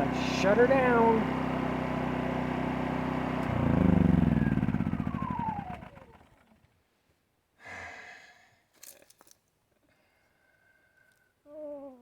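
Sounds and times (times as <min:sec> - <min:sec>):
generator engine shutting off: 0:00.0 - 0:06.8.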